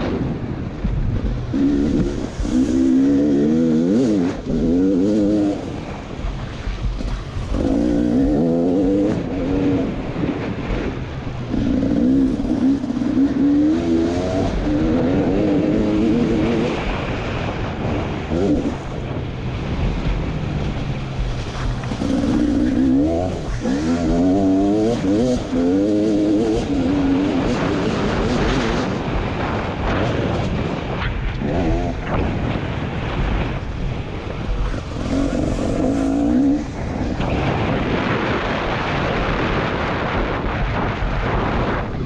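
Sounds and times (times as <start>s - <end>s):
two-stroke motorcycle engine revving: 0.0s - 42.0s.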